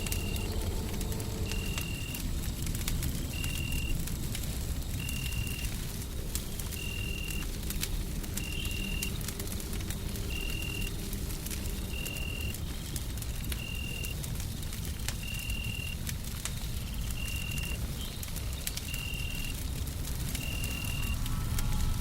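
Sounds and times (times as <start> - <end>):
steady low rumble: 0.0 - 6.8, 19.6 - 22.0
wood fire crackling and popping: 0.0 - 22.0.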